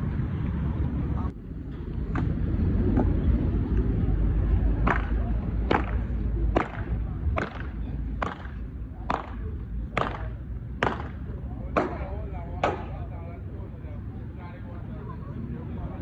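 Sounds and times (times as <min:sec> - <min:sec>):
low street rumble: 0:00.0 - 0:16.0
sharp knocks: 0:10.0 - 0:11.2.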